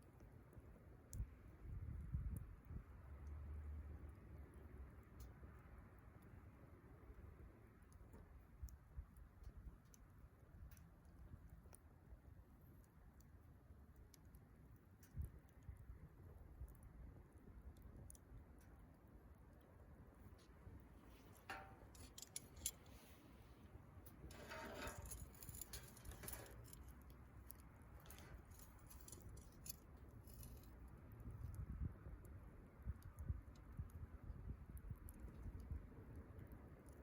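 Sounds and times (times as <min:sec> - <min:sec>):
campfire crackling: 0:00.0 - 0:03.0, 0:04.0 - 0:37.0
soft hiss: 0:14.9 - 0:31.9.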